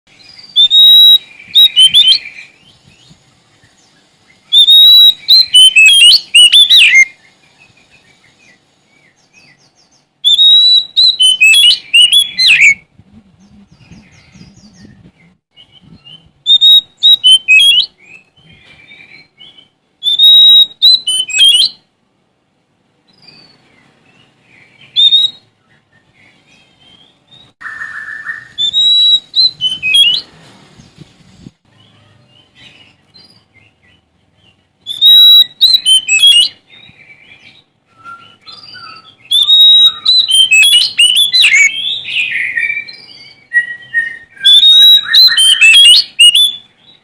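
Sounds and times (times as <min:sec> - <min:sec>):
bird singing whistles and buzzes: 0:00.1 - 0:21.8, 0:23.1 - 0:47.0.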